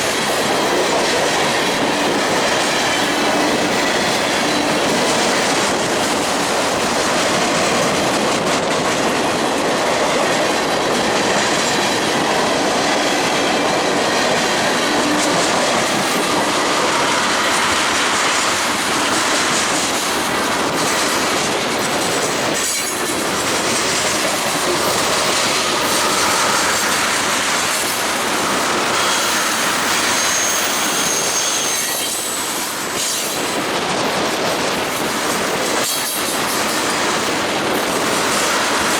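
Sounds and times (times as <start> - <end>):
train wheels clattering: 0.0 - 38.9
thin wheel squeal: 29.0 - 32.8.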